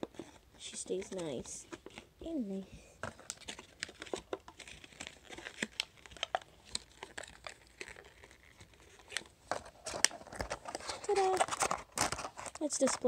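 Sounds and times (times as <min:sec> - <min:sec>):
packaging crinkling: 0:03.0 - 0:13.0.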